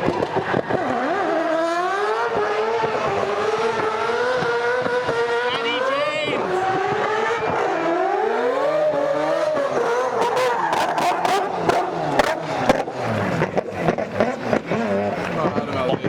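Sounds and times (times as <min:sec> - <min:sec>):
exhaust pops and crackles: 0:00.0 - 0:01.5, 0:02.3 - 0:05.2, 0:09.7 - 0:16.0
car engine revving hard: 0:00.0 - 0:16.0.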